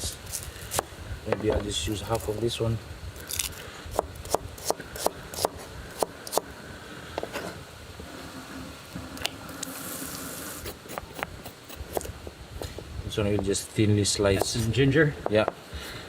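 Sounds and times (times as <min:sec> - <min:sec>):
short hiss: 0:09.5 - 0:11.9
knife cutting onion on board: 0:10.6 - 0:12.2.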